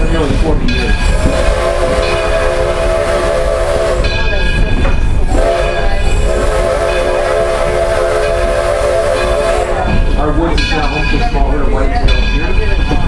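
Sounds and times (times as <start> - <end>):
train rumbling: 0.0 - 13.0
steam locomotive whistle blasts: 1.0 - 4.4, 5.3 - 10.0.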